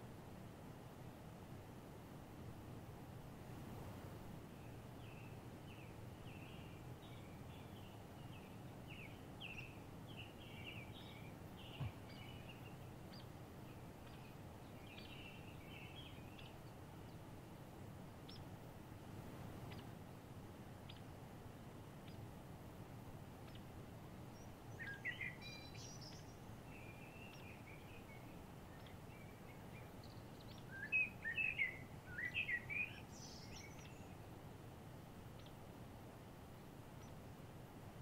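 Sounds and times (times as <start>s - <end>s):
low background hum: 0.0s - 38.0s
birds chirping: 4.5s - 18.6s, 23.4s - 34.3s
low thump: 11.8s - 12.0s.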